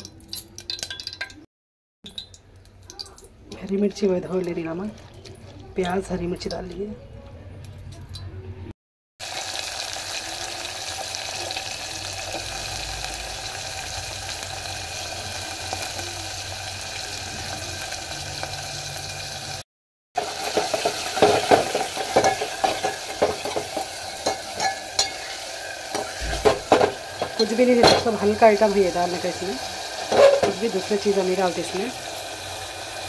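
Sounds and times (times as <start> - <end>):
onions sizzling in a pot: 9.2 - 19.6, 20.2 - 33.0
spoon scraping a metal pot: 20.2 - 30.9.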